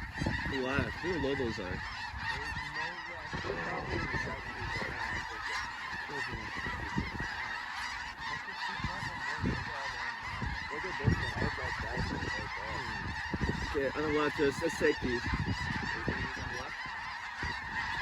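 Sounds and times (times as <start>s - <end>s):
flock of geese honking: 0.0s - 18.0s.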